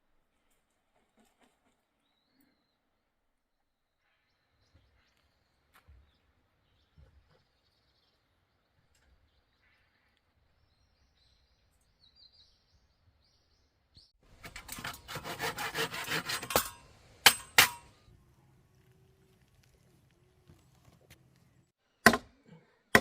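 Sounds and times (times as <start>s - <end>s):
faint birdsong: 0.7s - 15.3s, 16.8s - 22.8s
saw cutting wood: 14.3s - 17.9s
sharp wooden knocks: 22.0s - 22.3s.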